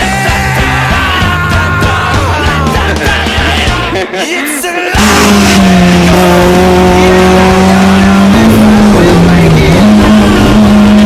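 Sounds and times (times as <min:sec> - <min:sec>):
car engine at high revs: 0:05.0 - 0:11.0.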